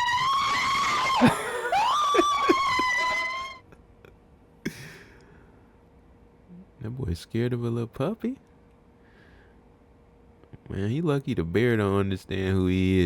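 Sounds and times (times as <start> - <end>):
person screaming in fright: 0.0 - 3.4.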